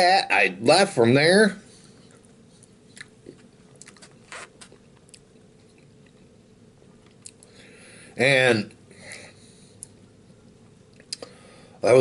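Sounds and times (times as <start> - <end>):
man chewing food: 1.9 - 7.6
soft mouth clicks and smacks: 2.1 - 6.3, 7.0 - 7.6, 10.9 - 11.3.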